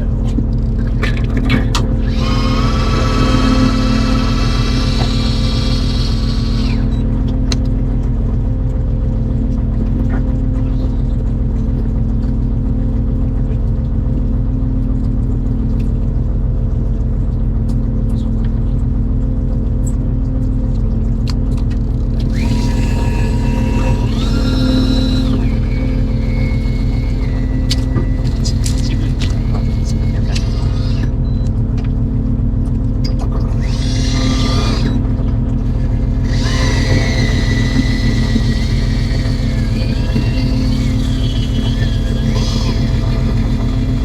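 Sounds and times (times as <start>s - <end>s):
high whine: 0.0s - 11.9s, 22.2s - 44.0s
boat engine humming: 0.0s - 13.3s, 21.8s - 44.0s.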